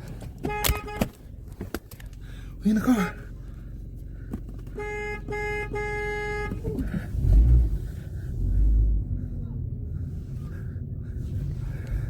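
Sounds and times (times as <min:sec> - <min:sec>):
car horn honking: 0:00.4 - 0:01.2, 0:02.8 - 0:03.3, 0:04.7 - 0:07.5
low rumble: 0:06.6 - 0:12.0.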